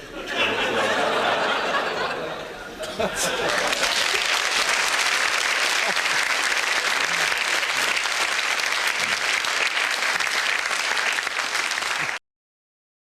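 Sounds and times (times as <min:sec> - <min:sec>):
audience applauding: 0:03.2 - 0:12.2.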